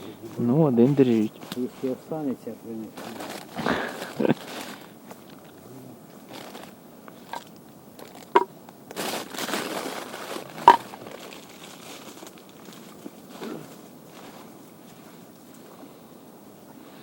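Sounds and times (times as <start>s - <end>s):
plastic wrapper crinkling: 3.0s - 5.5s, 6.3s - 13.0s.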